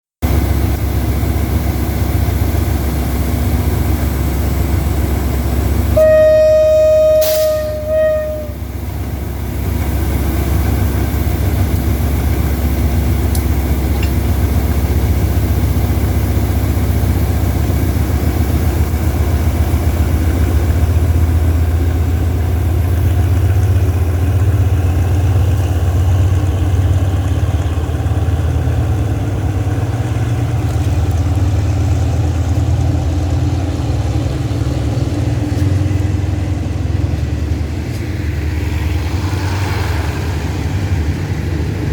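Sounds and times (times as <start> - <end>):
locomotive diesel engine rumbling: 0.2 - 41.9.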